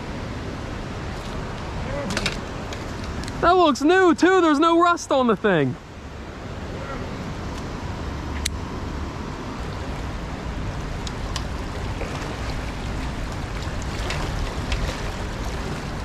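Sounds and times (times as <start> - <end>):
flowing river water: 0.0 - 16.0
wind rumbling on microphone: 6.5 - 16.0.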